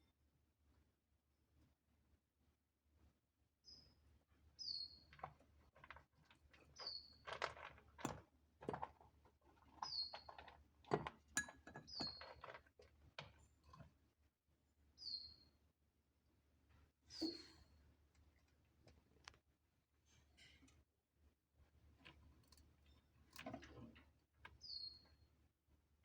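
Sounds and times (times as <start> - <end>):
soft irregular clicks and crackles: 18.1 - 19.4.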